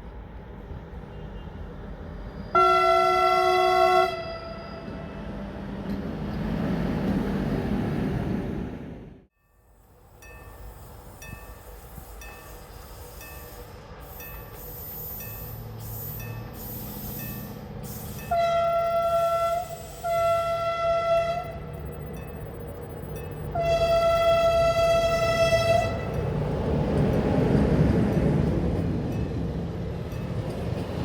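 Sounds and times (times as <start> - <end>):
train rumble: 0.0 - 31.0
train horn blasts: 2.5 - 5.2, 18.3 - 21.8, 23.5 - 26.2.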